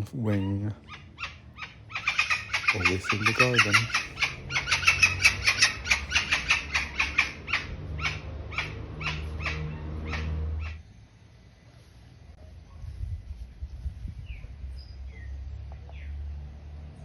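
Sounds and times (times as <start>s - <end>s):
bird harsh calls: 0.0s - 10.8s.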